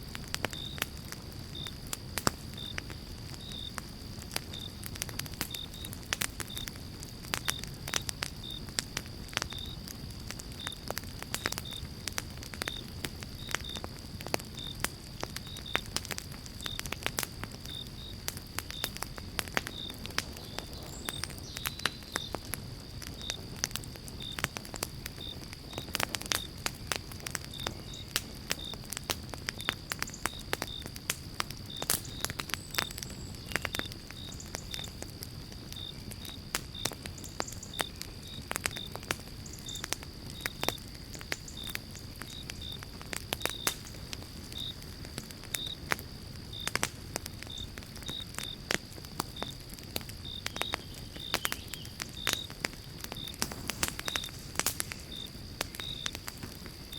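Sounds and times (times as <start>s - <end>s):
campfire crackling and popping: 0.0s - 56.9s
high insect trill: 0.0s - 56.9s
small chirps: 12.5s - 56.9s.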